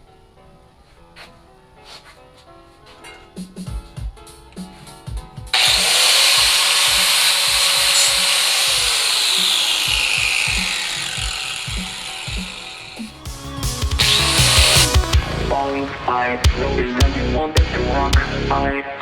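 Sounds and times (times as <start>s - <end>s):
abrasive disc grinding steel: 5.6s - 13.4s, 14.0s - 15.1s
electronic music with beat: 8.8s - 18.4s.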